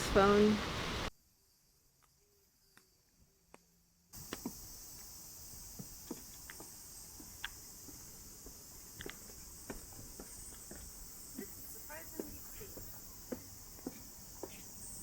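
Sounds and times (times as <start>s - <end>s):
rain hiss: 0.0s - 1.1s, 4.2s - 15.0s.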